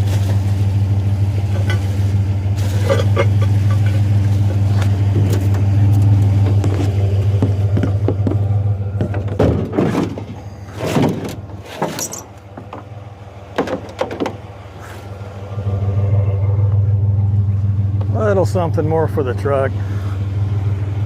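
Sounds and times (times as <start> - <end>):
truck engine idling: 0.0 - 21.0
scrap metal clanking: 1.4 - 5.7, 9.1 - 12.9.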